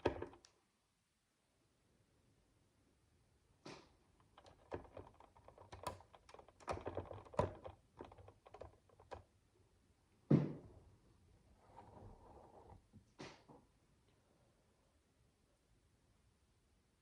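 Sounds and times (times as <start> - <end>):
plastic bricks clicking: 4.2 - 9.2.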